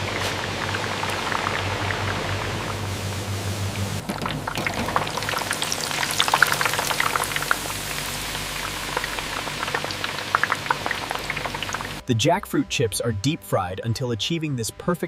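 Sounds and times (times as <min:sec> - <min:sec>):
low machine hum: 0:00.0 - 0:12.0
oil sizzling and crackling: 0:00.0 - 0:12.0.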